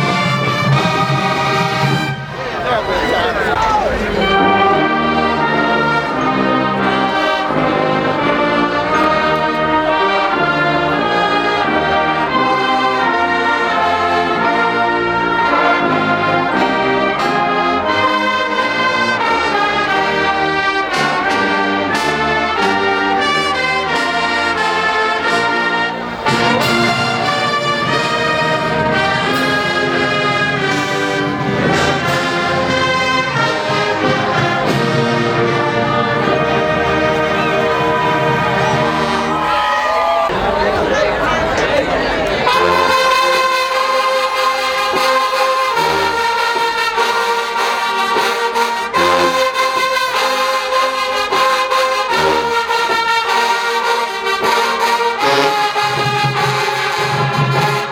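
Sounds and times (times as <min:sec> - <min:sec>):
brass section playing: 0:00.0 - 0:57.9.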